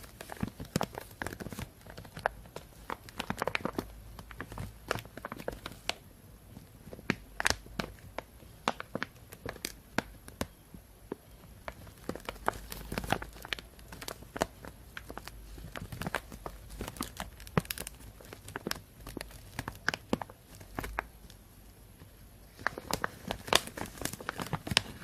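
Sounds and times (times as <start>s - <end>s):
plastic bag crinkling: 0.0s - 6.0s, 11.5s - 21.4s, 22.5s - 25.0s.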